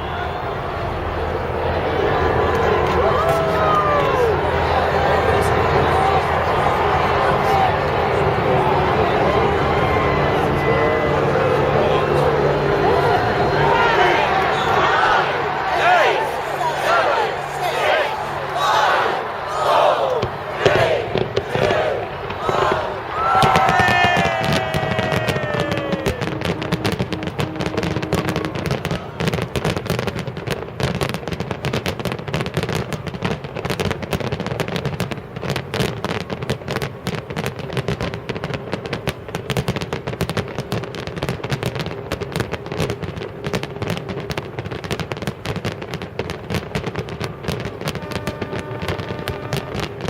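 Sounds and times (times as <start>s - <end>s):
fireworks crackling and bangs: 0.0s - 50.0s.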